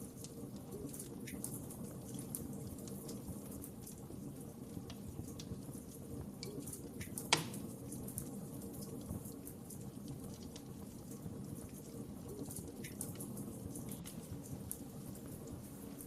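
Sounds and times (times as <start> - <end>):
fire crackling: 0.0 - 16.0
fire flames rumbling: 0.0 - 16.0
sharp pop of burning wood: 7.1 - 7.6.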